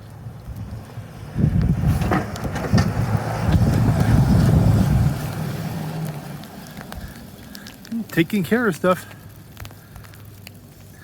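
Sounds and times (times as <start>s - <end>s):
vehicle engine rumble passing: 0.0s - 8.1s.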